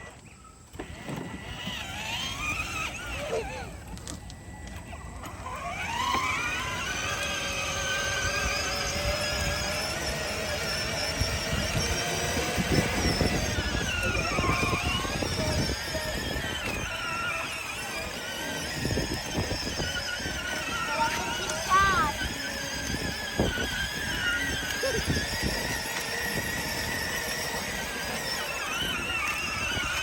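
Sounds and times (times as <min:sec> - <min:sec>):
electric motors whining: 0:00.0 - 0:30.0
low rumble of wheels: 0:00.0 - 0:30.0.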